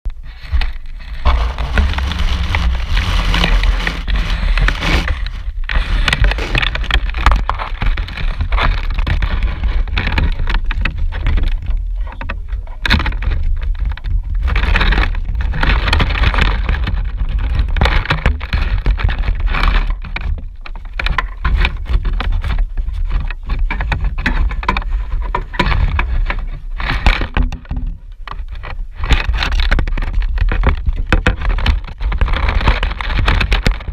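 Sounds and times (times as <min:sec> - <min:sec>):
scraping and rattling in duct: 0:00.1 - 0:33.9
low rumble of vent cleaning: 0:00.8 - 0:06.6.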